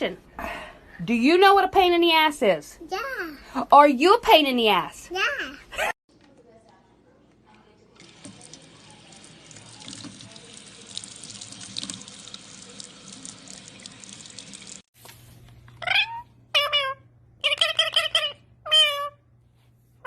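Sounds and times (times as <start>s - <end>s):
water running from a tap: 7.8s - 14.9s.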